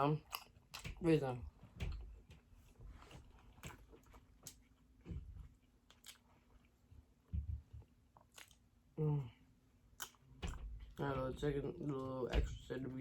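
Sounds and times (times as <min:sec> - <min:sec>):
person chewing food: 0:00.1 - 0:01.0, 0:01.6 - 0:09.0, 0:09.8 - 0:11.0.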